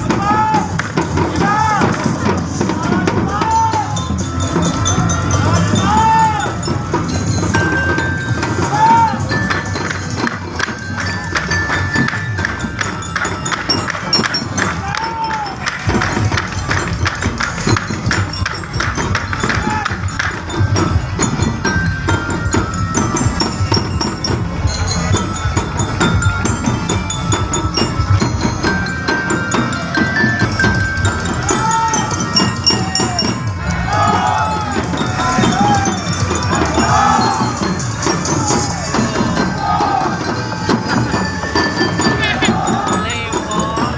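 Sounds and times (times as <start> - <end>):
crowd voices: 0.0 - 43.9
loud music: 0.0 - 43.9
ringing bell-like tones: 0.0 - 43.9
wooden clogs clacking on road: 8.5 - 20.9.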